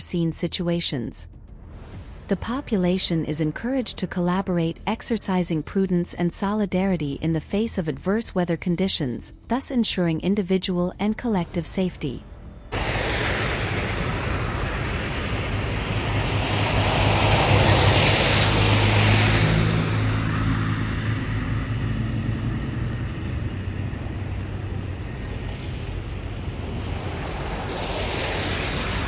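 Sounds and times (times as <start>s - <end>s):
engine hum: 12.3s - 29.0s
steady rushing noise: 12.7s - 29.0s.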